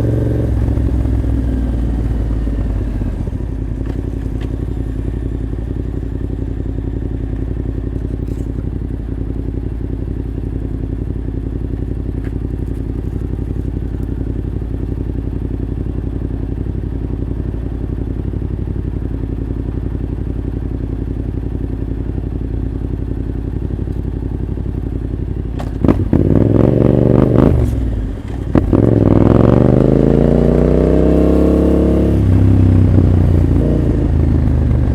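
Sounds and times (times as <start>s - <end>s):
motorcycle engine revving: 0.0s - 10.0s, 21.4s - 34.9s
motorcycle engine idling: 0.0s - 34.9s.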